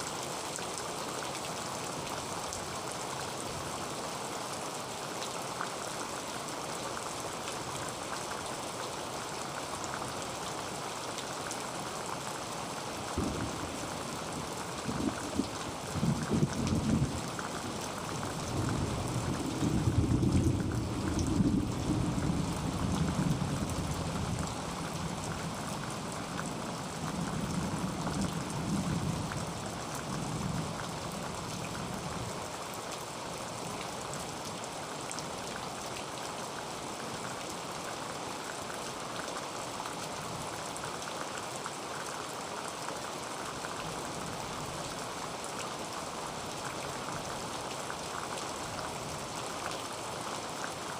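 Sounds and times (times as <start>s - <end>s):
heavy rain on a tin roof: 0.0s - 50.9s
thunder rumble: 13.2s - 14.1s.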